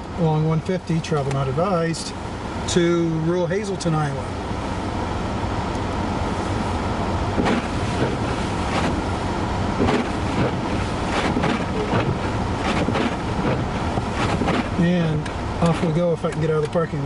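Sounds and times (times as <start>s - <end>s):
vehicle engine idling: 0.0s - 17.0s
wind gusts buffeting microphone: 7.1s - 16.0s.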